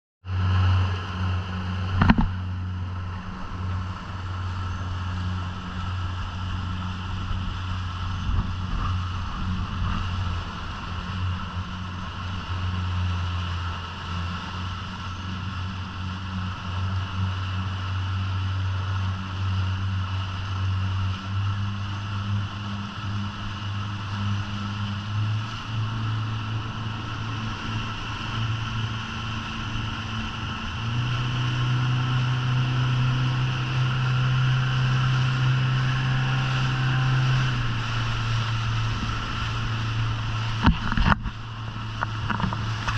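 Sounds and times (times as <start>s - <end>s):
boat engine droning: 0.2s - 42.9s.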